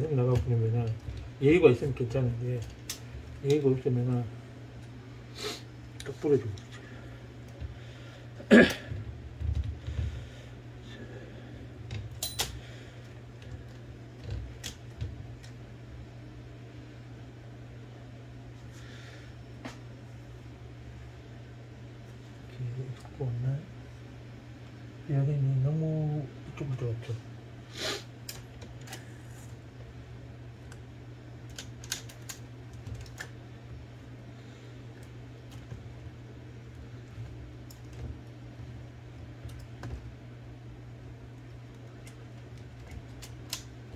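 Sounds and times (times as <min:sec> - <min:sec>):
steady low hum: 0:00.0 - 0:43.9
typewriter parts clicking: 0:31.5 - 0:33.3.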